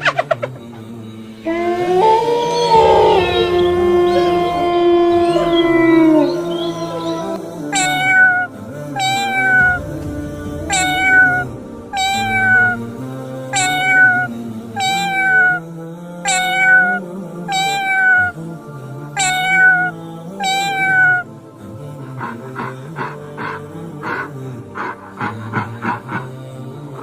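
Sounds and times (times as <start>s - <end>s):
background music: 0.0s - 27.0s
cat meowing: 1.5s - 9.8s, 10.7s - 12.8s, 13.6s - 15.6s, 16.3s - 18.4s, 19.2s - 21.3s.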